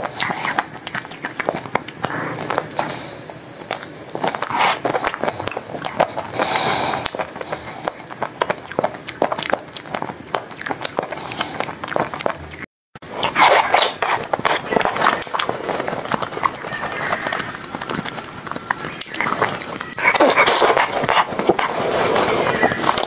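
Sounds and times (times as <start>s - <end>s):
crunching and chewing ice cream bar: 0.0s - 23.0s.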